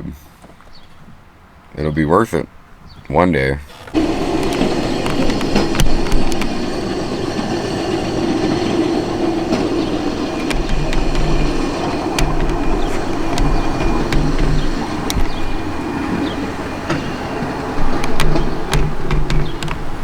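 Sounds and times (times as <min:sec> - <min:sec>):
sharp clicks of wheels: 0:03.7 - 0:20.0
train wheels rumbling on track: 0:03.7 - 0:20.0.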